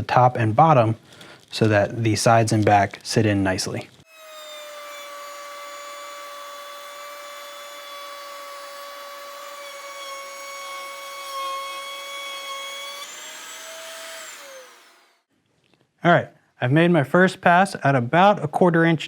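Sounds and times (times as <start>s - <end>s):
router bit cutting plywood: 4.1s - 15.2s
router motor whining: 4.1s - 15.2s.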